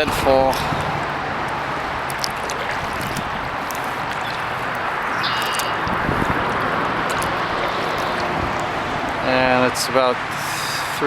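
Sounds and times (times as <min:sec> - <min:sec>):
water drips and clicks: 0:00.0 - 0:09.6
highway traffic rushing: 0:00.0 - 0:11.0
high chirp: 0:04.2 - 0:06.3.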